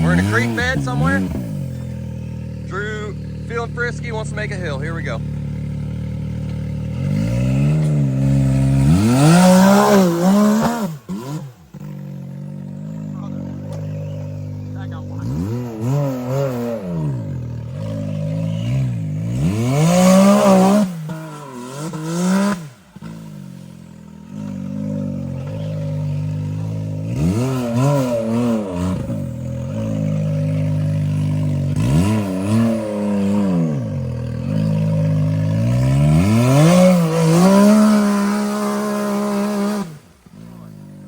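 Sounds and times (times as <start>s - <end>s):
utility vehicle engine revving hard: 0.0s - 41.0s.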